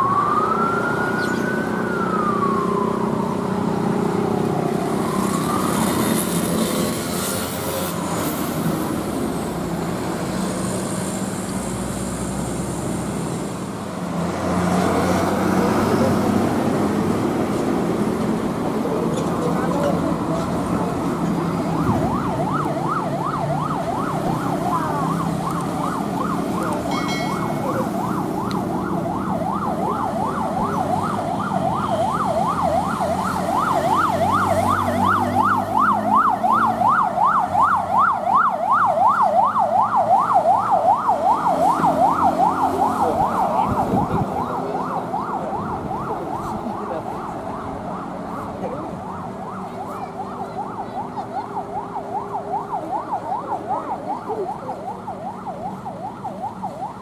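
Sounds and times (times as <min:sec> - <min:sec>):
siren yelping: 0:00.0 - 0:07.0, 0:15.1 - 0:57.0
engine and traffic rumble: 0:00.0 - 0:57.0.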